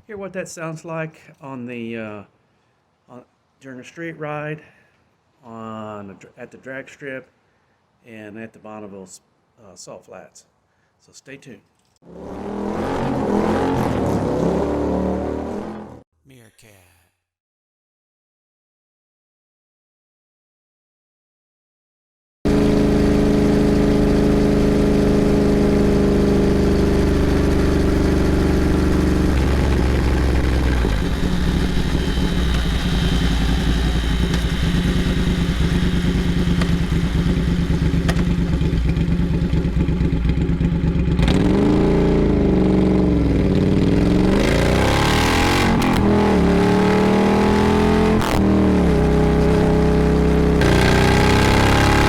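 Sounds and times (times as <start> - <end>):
motorcycle engine revving: 12.0 - 16.0, 22.5 - 52.0.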